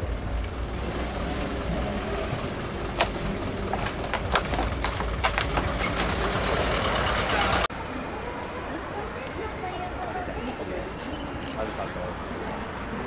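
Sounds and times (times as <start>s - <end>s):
car engine rumbling: 0.0s - 7.7s.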